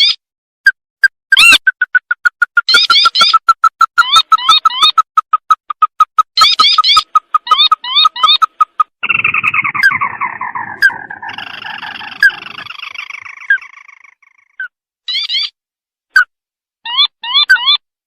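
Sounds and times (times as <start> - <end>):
bird calling with rattling trill: 1.3 - 15.6.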